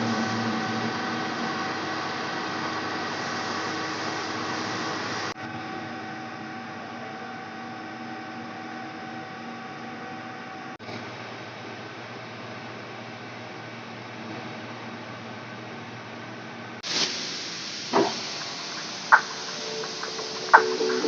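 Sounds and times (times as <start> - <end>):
metal lathe humming: 0.0 - 10.2.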